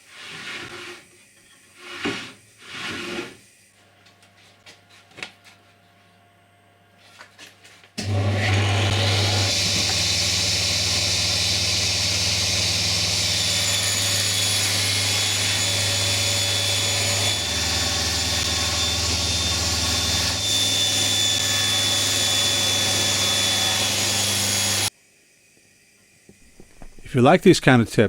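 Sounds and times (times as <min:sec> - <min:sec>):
table saw running: 0:08.0 - 0:24.9.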